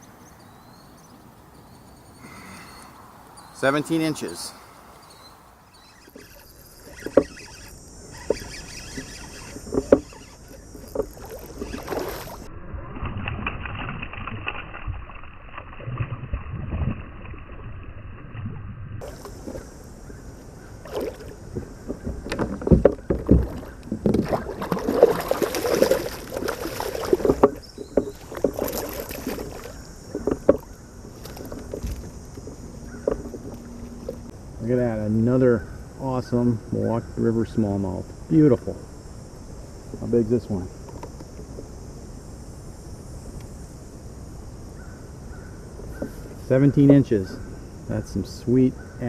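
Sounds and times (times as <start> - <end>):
water splashing: 5.7 - 34.3
gear knocking against hull: 21.0 - 34.2.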